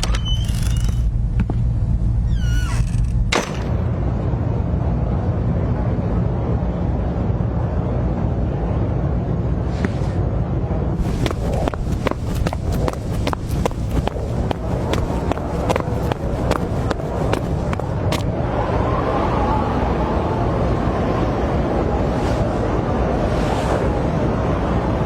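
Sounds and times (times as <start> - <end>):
steady low rumble: 4.0 - 18.8.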